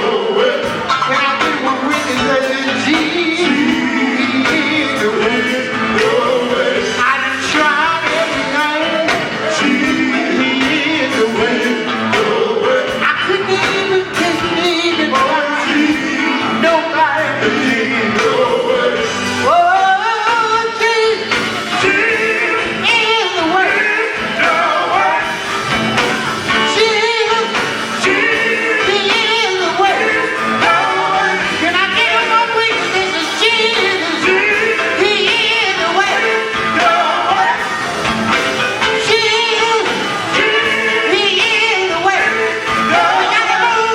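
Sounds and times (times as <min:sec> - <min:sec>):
band accompaniment: 0:00.0 - 0:43.9
male group singing gospel: 0:00.0 - 0:43.9.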